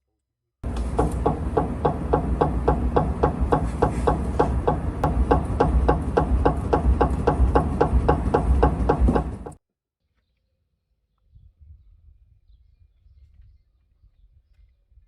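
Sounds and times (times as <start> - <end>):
rapid suspension clicking: 0.6 - 9.6.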